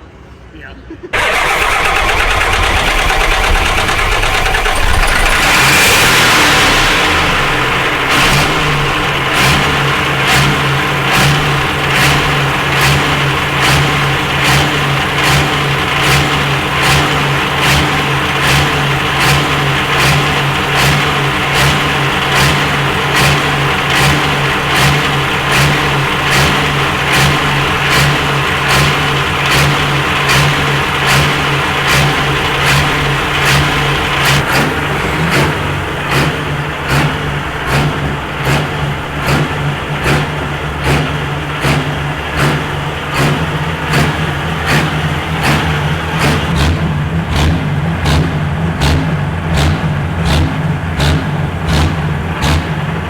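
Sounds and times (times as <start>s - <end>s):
diesel tractor engine running: 1.1s - 53.0s.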